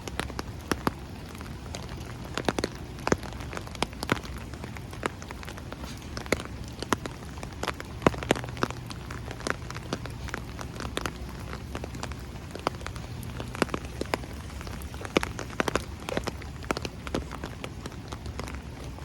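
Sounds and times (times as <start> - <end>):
low steady rumble: 0.0 - 19.0
rain falling: 0.0 - 19.0
raindrops ticking close by: 0.0 - 19.0.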